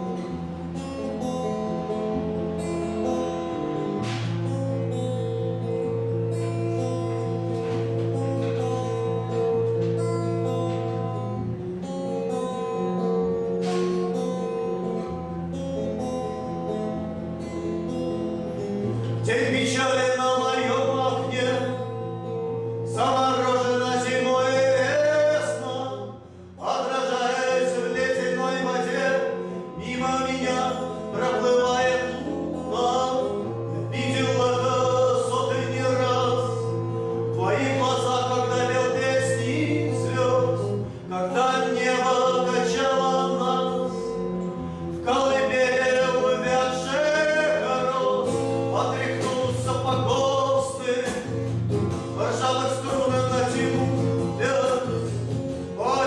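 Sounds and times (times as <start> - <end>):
acoustic guitar accompaniment: 0.0 - 56.0
man singing: 19.0 - 22.2, 22.8 - 44.4, 45.0 - 56.0.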